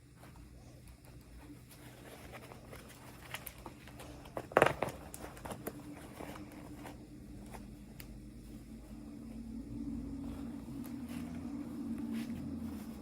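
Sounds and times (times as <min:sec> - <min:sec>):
plastic packaging clicks and crinkles: 0:00.9 - 0:06.9
plastic packaging rustle: 0:01.4 - 0:07.7.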